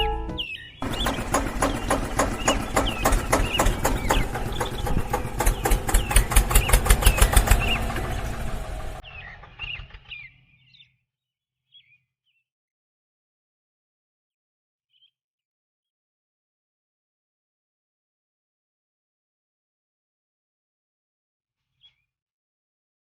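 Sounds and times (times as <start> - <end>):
engine chugging: 0.8 - 10.2.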